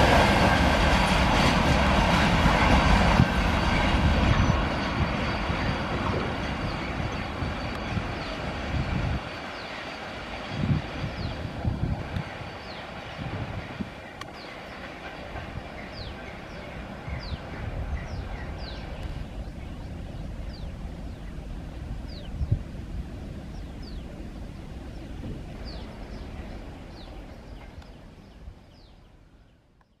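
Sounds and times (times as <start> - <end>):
low outdoor rumble: 15.2 - 29.6.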